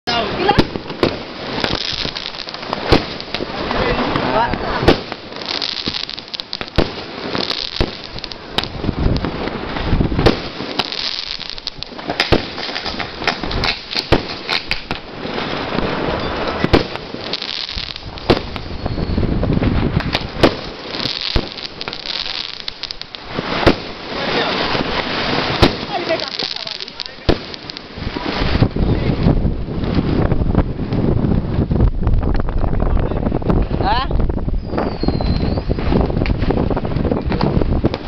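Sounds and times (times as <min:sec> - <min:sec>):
fireworks bangs: 0:00.1 - 0:32.6, 0:33.2 - 0:38.0
fireworks crackle and hiss: 0:00.1 - 0:38.0.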